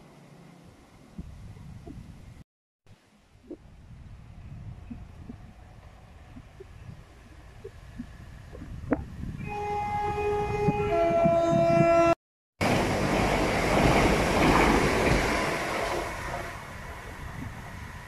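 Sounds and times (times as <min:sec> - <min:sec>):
two-tone train horn: 0:09.4 - 0:12.2
train rushing past: 0:12.6 - 0:18.0.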